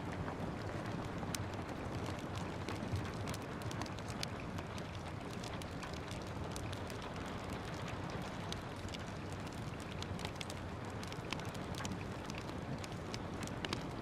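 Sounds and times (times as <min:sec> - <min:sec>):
steady rain: 0:00.0 - 0:14.0
wood fire crackling: 0:00.0 - 0:14.0.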